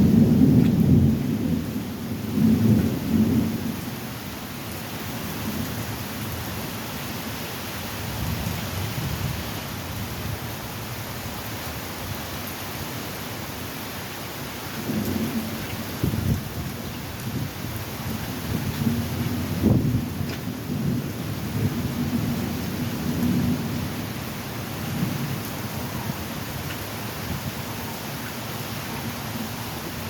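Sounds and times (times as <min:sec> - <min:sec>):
thunder rumbling: 0:00.0 - 0:03.8, 0:14.8 - 0:26.4
steady rain: 0:00.0 - 0:30.0.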